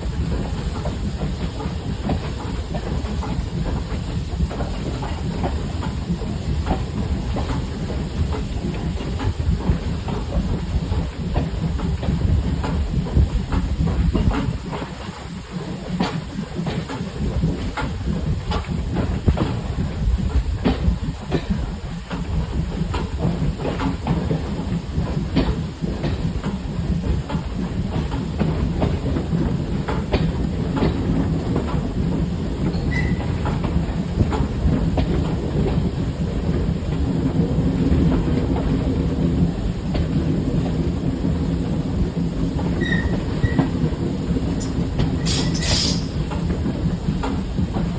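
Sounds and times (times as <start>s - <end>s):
train wheels rumbling on track: 0.0s - 47.9s
wheels and couplings clicking: 42.5s - 47.9s.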